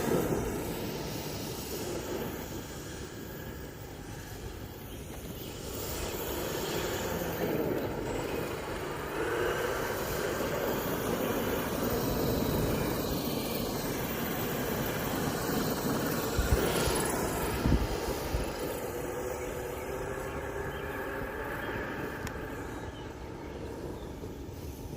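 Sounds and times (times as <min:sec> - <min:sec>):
electric ducted fans whining: 0:00.0 - 0:24.9.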